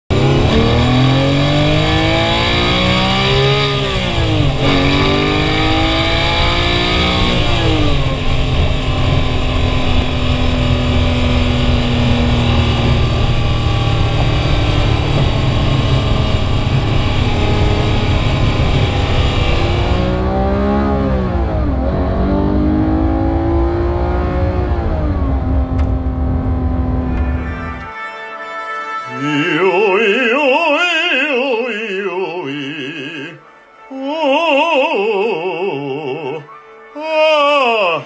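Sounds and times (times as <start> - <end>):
car engine accelerating hard: 0.1 - 27.7.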